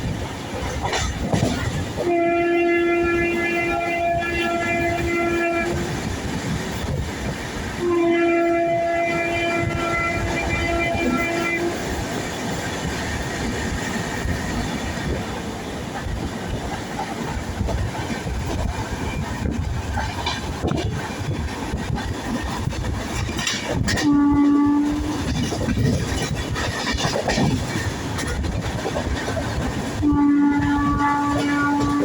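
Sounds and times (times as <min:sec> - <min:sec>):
train rumbling on rails: 0:00.0 - 0:32.0
train horn: 0:02.0 - 0:06.1, 0:07.7 - 0:12.2, 0:23.4 - 0:26.2, 0:29.8 - 0:32.0.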